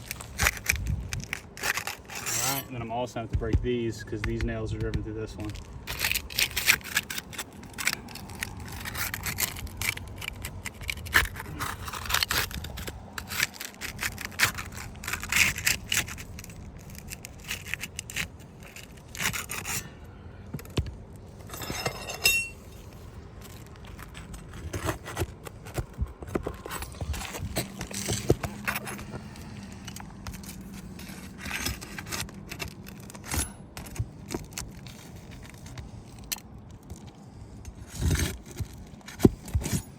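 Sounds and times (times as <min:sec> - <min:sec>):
roof shingles scraping: 0:00.0 - 0:03.4, 0:05.3 - 0:20.0.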